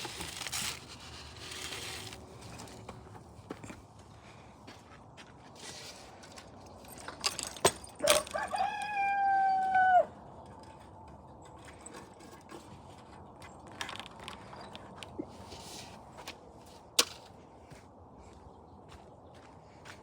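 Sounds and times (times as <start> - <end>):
rooster crowing: 8.0 - 10.2.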